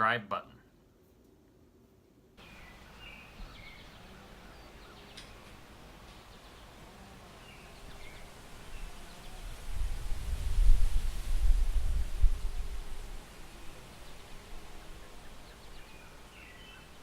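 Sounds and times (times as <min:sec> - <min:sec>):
wind hissing: 0:02.4 - 0:17.0
wind rumble on microphone: 0:07.8 - 0:15.0.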